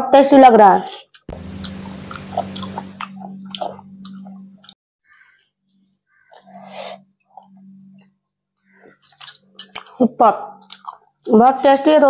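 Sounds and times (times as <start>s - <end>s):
person chewing food: 0.9s - 8.1s, 8.8s - 11.3s
steady low hum: 1.3s - 4.8s, 6.4s - 9.8s.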